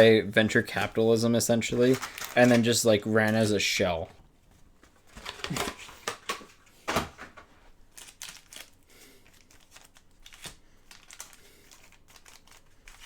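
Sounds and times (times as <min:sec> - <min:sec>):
wrapper and cards crinkling: 0:00.6 - 0:03.7, 0:07.7 - 0:13.0
cards scraping: 0:07.9 - 0:13.0.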